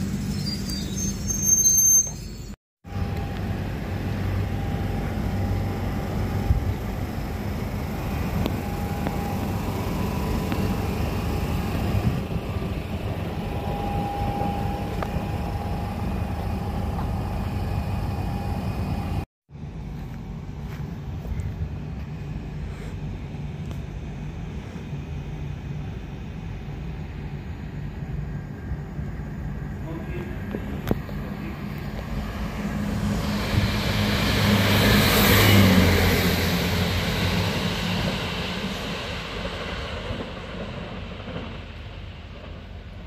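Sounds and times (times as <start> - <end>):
high wheel squeal: 0.0 - 2.6, 8.2 - 19.2
tube train rumbling: 0.0 - 43.0
faint whining tones: 12.4 - 19.2.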